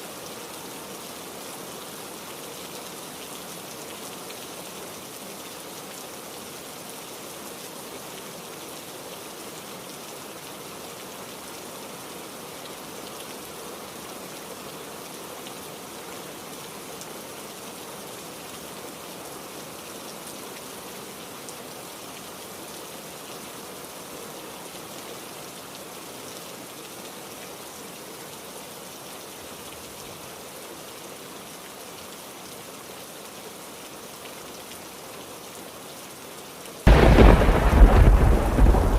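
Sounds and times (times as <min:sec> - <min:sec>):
heavy rain pattering: 0:36.9 - 0:38.9.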